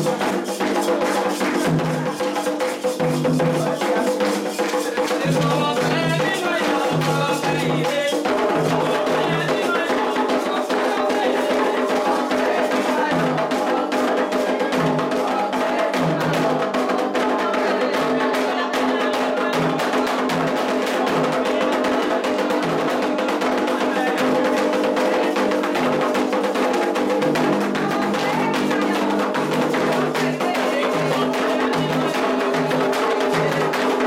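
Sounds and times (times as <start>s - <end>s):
hand drums playing: 0.0s - 34.0s
voices singing a chant: 0.0s - 34.0s.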